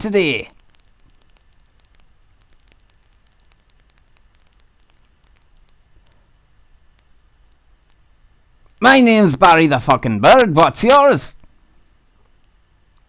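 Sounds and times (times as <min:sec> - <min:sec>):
low steady hum: 0:00.0 - 0:13.0
small clicks: 0:00.4 - 0:08.8, 0:12.2 - 0:13.0.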